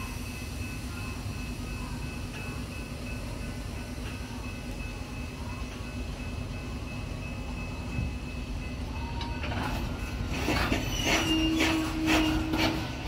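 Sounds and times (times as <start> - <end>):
train cars rolling on steel wheels: 0.0 - 13.0
train wheel clicks: 9.2 - 13.0.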